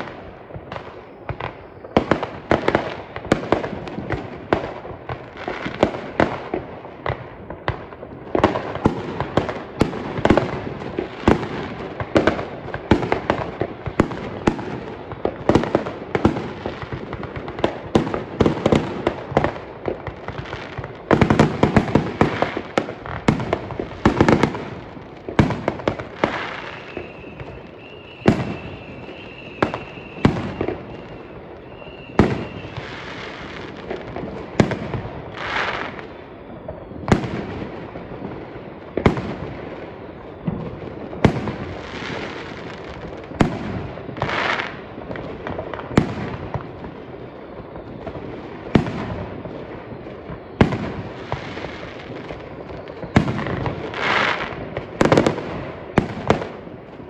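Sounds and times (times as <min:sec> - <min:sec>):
fireworks bangs and crackles: 0:00.0 - 0:57.0
high firework whistle: 0:00.7 - 0:03.6, 0:13.0 - 0:44.9, 0:45.9 - 0:56.2.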